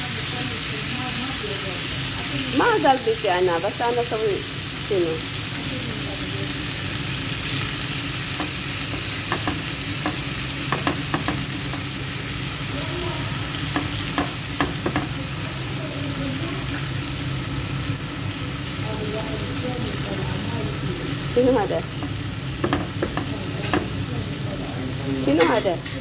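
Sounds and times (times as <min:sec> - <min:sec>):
meat sizzling on griddle: 0:00.0 - 0:26.0
spatula scraping and tapping pan: 0:08.3 - 0:12.0, 0:13.6 - 0:15.2, 0:22.0 - 0:24.0.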